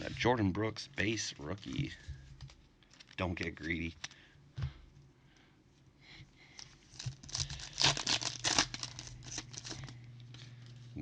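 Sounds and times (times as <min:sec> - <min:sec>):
wrapper tearing and crinkling: 0:02.9 - 0:03.3, 0:06.6 - 0:10.4.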